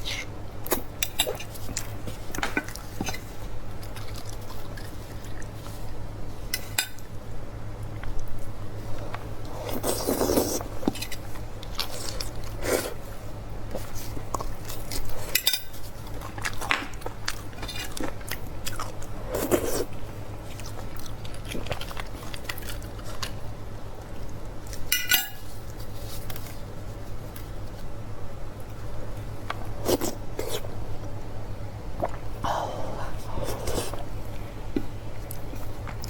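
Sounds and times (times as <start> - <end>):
steady low hum: 0.0 - 36.0
cutlery clicking against a dish: 24.9 - 25.4.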